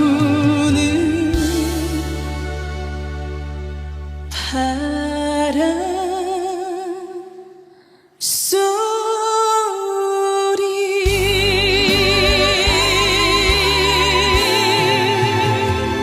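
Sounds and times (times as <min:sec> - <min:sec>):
woman singing with vibrato: 0:08.2 - 0:16.0
band playing with bass and drums: 0:11.1 - 0:16.0.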